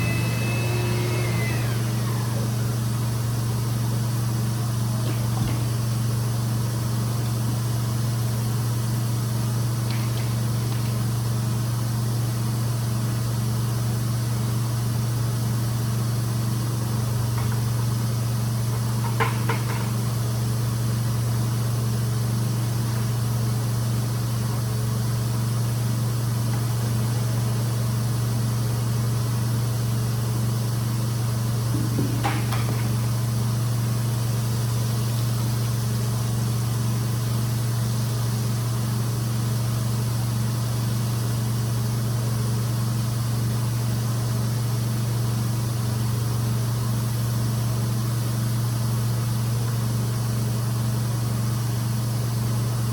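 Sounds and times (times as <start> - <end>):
extraction machine humming and hissing: 0.0 - 13.6.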